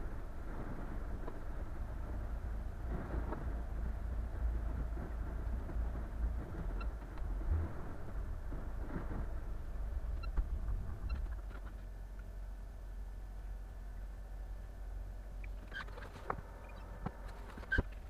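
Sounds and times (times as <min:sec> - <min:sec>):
boat engine low rumble: 0:00.0 - 0:18.0.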